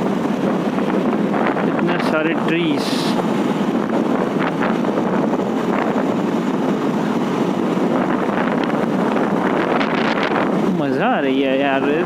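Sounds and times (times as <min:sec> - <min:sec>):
motorcycle road noise: 0:00.0 - 0:12.0
wind on microphone: 0:00.0 - 0:12.0.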